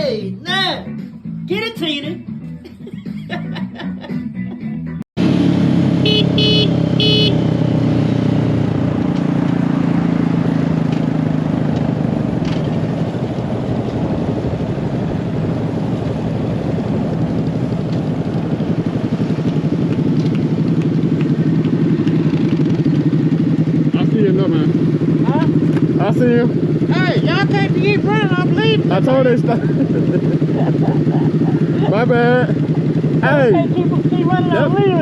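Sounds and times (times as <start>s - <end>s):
short horn toots: 6.0s - 7.5s.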